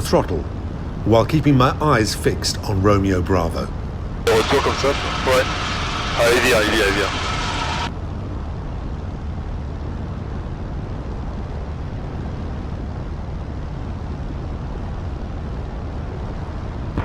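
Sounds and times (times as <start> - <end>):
light aircraft engine droning: 0.0 - 17.0
air rushing: 4.3 - 7.9.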